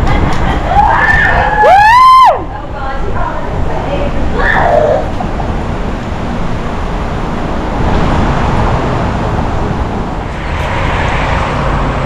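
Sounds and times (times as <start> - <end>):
wind buffeting microphone: 2.4 - 12.0.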